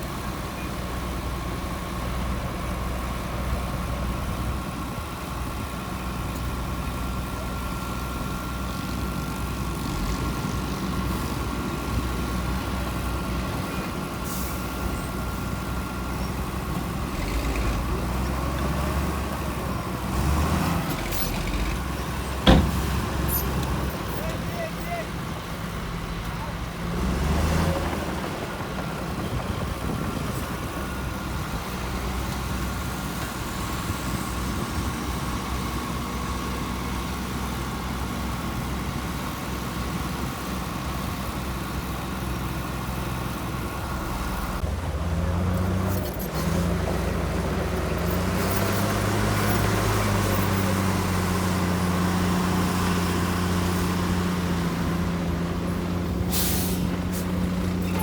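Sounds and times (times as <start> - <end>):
heavy diesel engine revving: 1.1 - 24.5, 25.1 - 38.8, 39.7 - 58.0.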